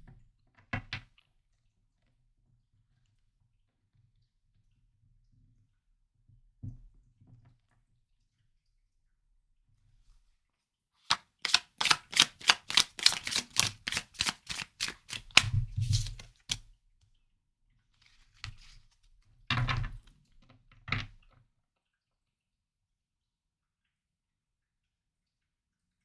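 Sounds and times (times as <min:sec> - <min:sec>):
cards being shuffled: 0:11.1 - 0:16.6
soft card handling: 0:11.1 - 0:16.6.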